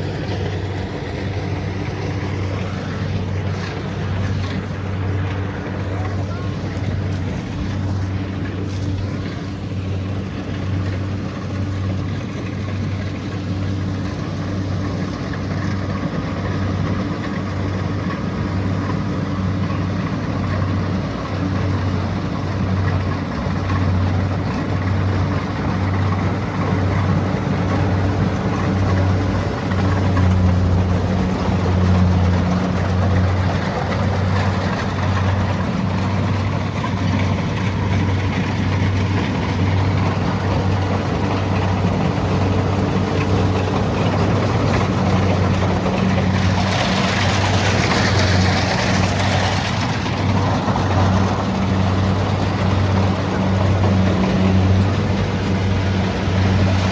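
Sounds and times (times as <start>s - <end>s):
combine harvester engine running: 0.0s - 56.9s.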